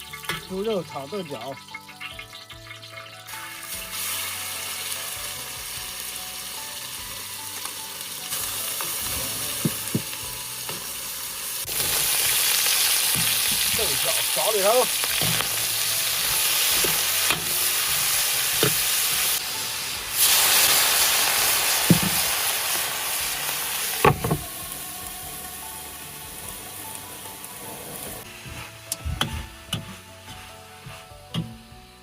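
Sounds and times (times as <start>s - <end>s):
food sizzling in a wok: 0.0s - 32.0s.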